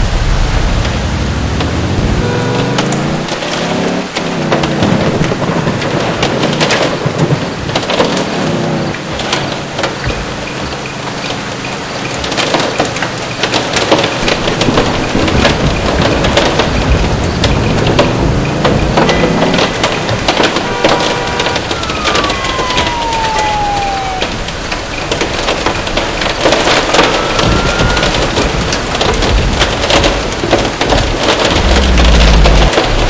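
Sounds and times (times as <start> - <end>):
car engine: 0.0 - 6.2, 15.8 - 33.0
hailstones ticking: 0.0 - 33.0
heavy rain on a car: 0.0 - 33.0.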